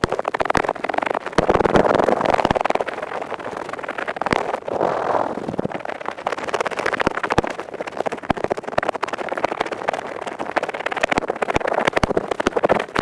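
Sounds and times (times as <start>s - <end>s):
ear pick scraping microphone: 4.6s - 5.8s.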